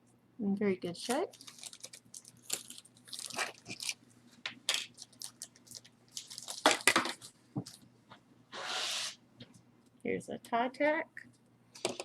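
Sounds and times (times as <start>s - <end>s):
crinkling rustles: 1.0s - 7.9s.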